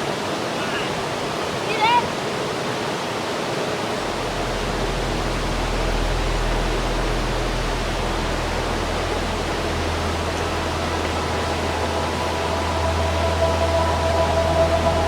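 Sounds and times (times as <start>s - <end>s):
waterfall rushing and splashing: 0.0s - 15.0s.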